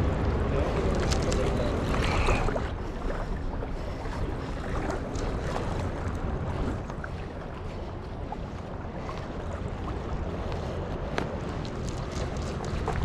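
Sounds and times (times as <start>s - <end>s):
river water rushing: 0.0s - 10.3s
wind buffeting microphone: 0.0s - 13.0s.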